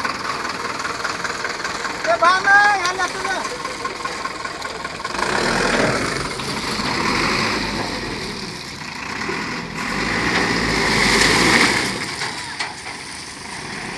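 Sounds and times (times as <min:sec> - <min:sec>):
truck diesel engine running: 0:00.0 - 0:13.9.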